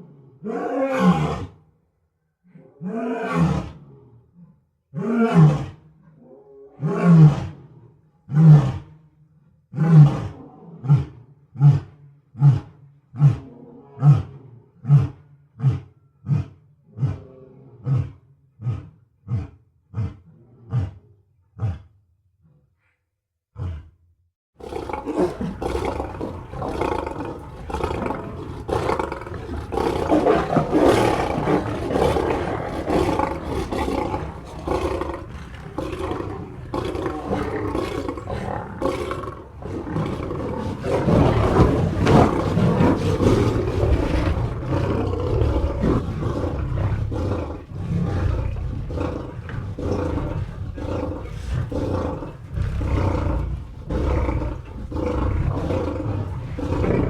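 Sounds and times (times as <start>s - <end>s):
big cat roaring: 0.4s - 1.6s, 24.6s - 57.0s.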